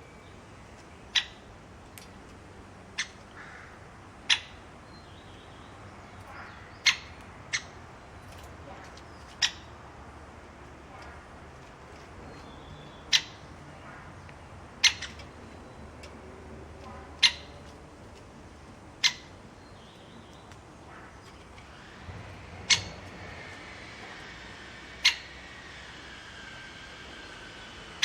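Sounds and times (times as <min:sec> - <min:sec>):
bird giving sharp calls: 0:03.0 - 0:04.6, 0:06.0 - 0:08.1, 0:08.7 - 0:10.0, 0:12.2 - 0:15.8, 0:16.9 - 0:17.7, 0:19.0 - 0:19.8, 0:22.6 - 0:23.4, 0:24.6 - 0:25.7.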